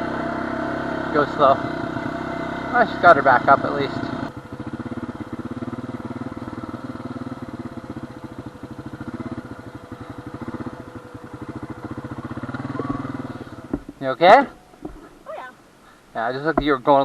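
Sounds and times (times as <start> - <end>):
quad engine idling: 0.0 - 15.4.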